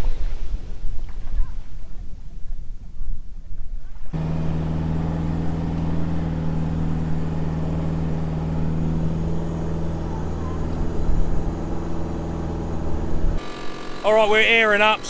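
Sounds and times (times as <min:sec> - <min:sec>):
tyre and road noise: 0:04.1 - 0:15.0
car engine drone: 0:04.2 - 0:15.0.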